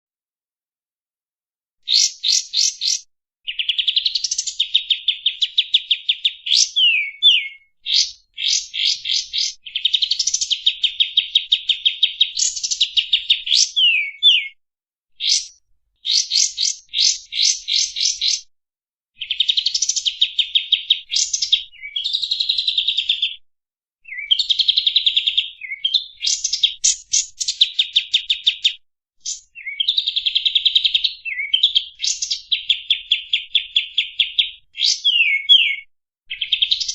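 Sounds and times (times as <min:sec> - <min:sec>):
songbird singing chattering trills: 0:01.8 - 0:14.6, 0:15.2 - 0:18.4, 0:24.1 - 0:36.9.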